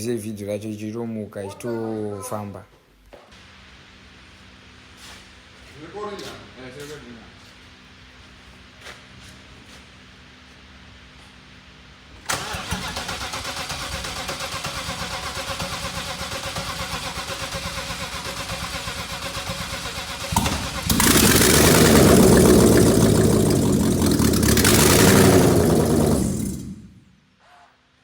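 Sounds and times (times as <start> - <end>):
car engine starting and running: 12.2 - 27.1.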